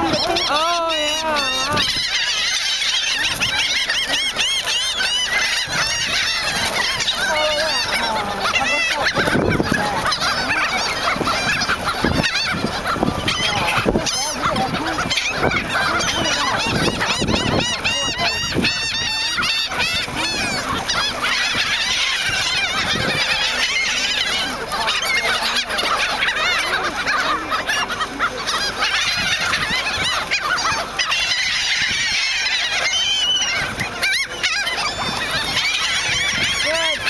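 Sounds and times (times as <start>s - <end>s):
seagulls squawking: 0.0s - 37.0s.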